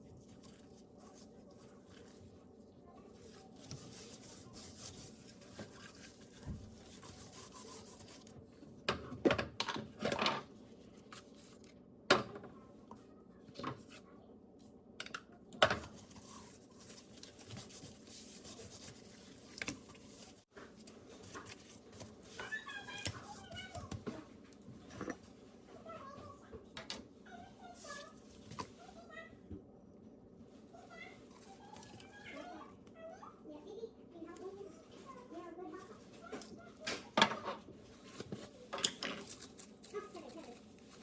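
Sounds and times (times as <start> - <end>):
hands rubbing and scraping food: 0.0 - 8.3, 15.9 - 20.5, 39.2 - 41.0.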